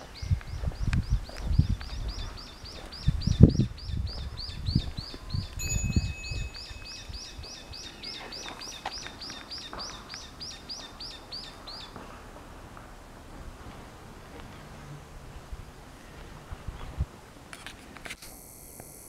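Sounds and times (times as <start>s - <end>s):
bird chirping rapidly: 0.0s - 12.0s.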